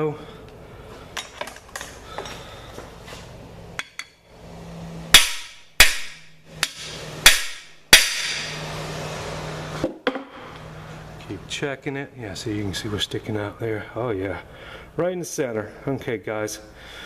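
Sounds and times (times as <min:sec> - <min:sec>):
hammer striking metal tool: 0:05.1 - 0:08.6.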